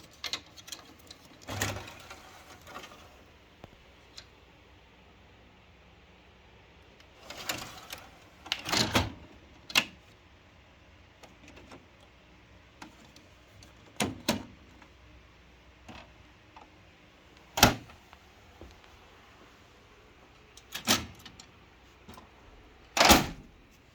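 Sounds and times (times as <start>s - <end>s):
copier parts clicking and knocking: 0.0s - 3.0s, 7.4s - 10.0s, 12.8s - 15.0s, 15.8s - 19.0s, 20.4s - 23.8s.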